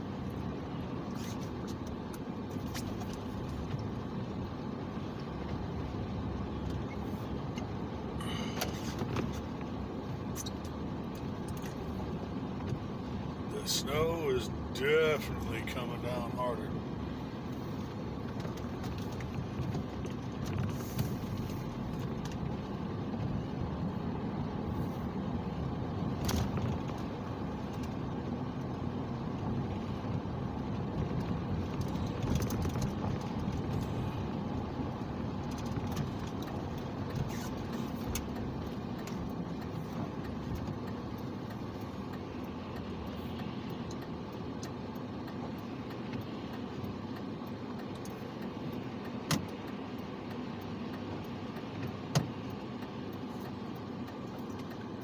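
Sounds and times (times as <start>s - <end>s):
car engine and road rumble: 0.0s - 55.0s
small clicks and rattles: 31.0s - 33.9s.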